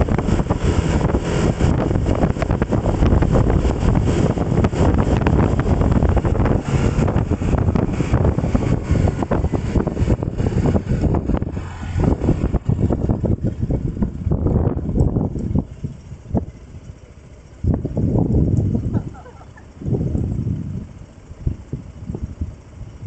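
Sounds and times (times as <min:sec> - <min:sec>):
moving ride rumble: 0:00.0 - 0:23.0
wind buffeting microphone: 0:00.0 - 0:23.0.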